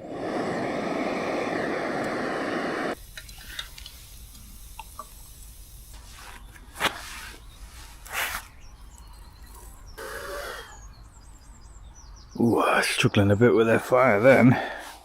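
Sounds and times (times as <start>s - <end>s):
small clicks: 3.2s - 5.2s.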